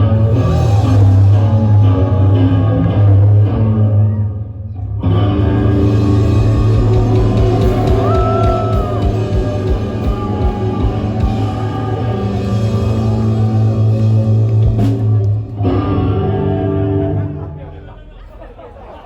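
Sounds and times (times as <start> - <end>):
live rock band playing: 0.0 - 3.9, 5.1 - 17.6
held low bass note: 5.4 - 15.2.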